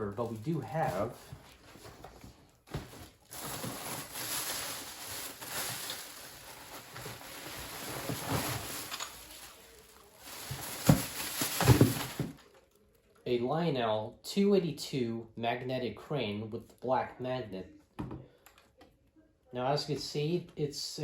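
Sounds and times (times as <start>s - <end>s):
packaging rustling and crinkling: 0.0s - 12.8s
knocks and clatters of handling: 5.5s - 9.7s, 10.3s - 12.6s.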